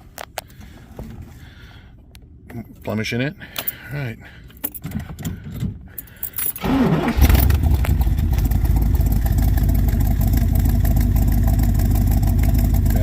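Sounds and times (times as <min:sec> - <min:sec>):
car engine starting and running: 0:06.5 - 0:13.0.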